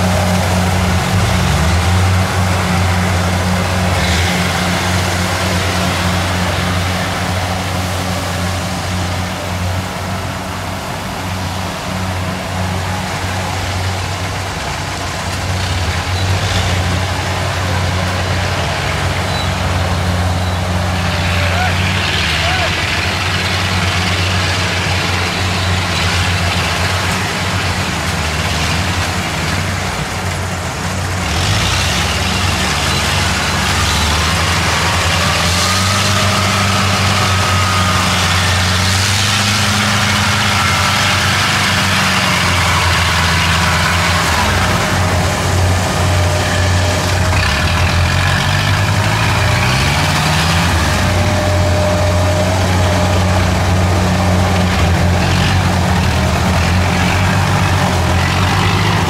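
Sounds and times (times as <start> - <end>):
combine harvester diesel engine: 0.0 - 59.0
rush of machinery noise: 0.0 - 59.0.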